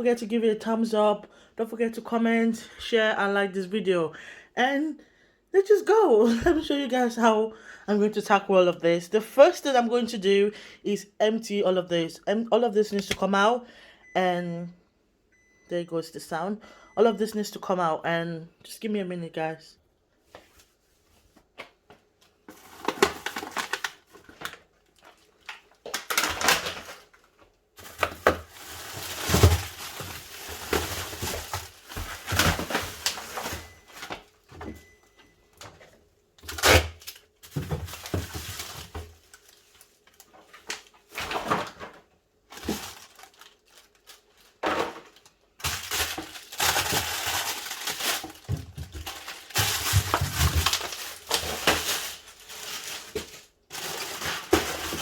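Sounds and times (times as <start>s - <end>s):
packaging crinkling: 22.4s - 34.4s, 36.4s - 41.9s, 42.5s - 55.0s.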